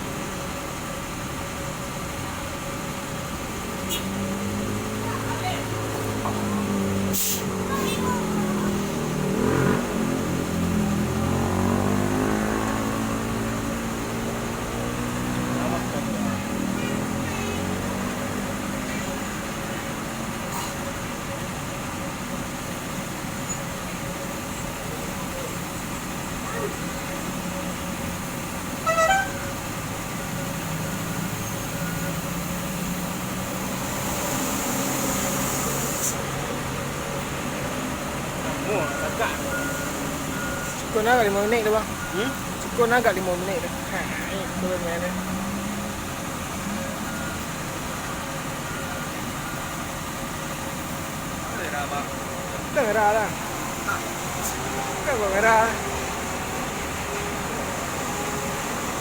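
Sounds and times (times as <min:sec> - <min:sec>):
truck engine running: 0:00.0 - 0:59.0
brief sharp hiss: 0:07.1 - 0:07.5, 0:34.5 - 0:36.2
two-note horn toot: 0:28.8 - 0:29.5.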